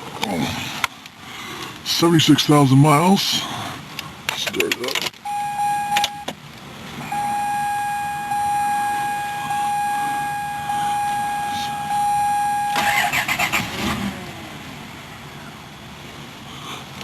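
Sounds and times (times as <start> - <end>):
car starter whining: 5.2 - 6.3, 7.0 - 14.4.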